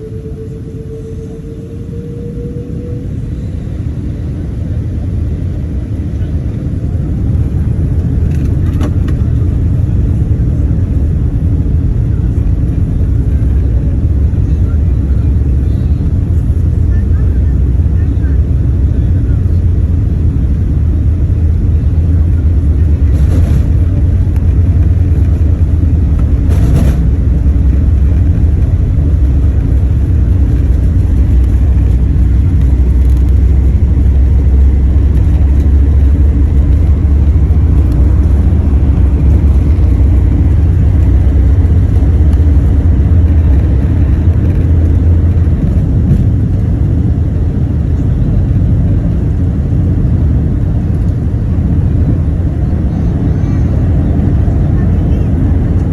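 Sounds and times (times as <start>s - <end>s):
jet engines and airflow rumble: 0.0s - 55.9s.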